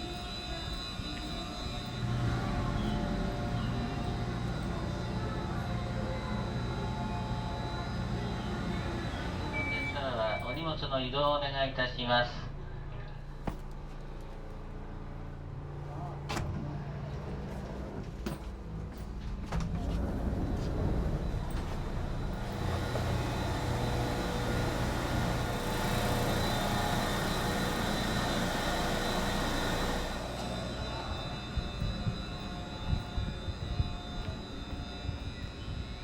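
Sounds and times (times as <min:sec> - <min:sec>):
low engine hum: 0:00.0 - 0:11.8, 0:12.4 - 0:36.0
train running noise: 0:00.0 - 0:36.0.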